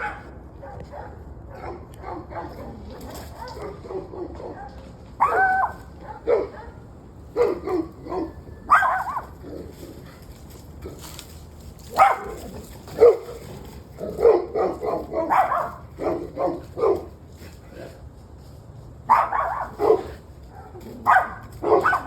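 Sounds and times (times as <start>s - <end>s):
dog barking: 0.0s - 9.4s, 11.9s - 13.4s, 14.0s - 17.2s, 19.1s - 22.0s.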